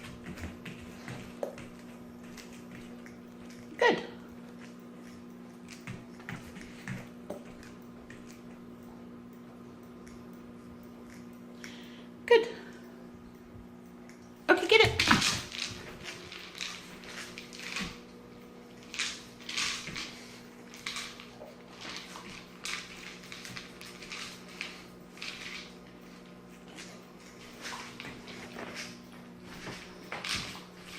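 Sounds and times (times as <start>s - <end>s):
dog crunching kibble: 14.8s - 30.9s.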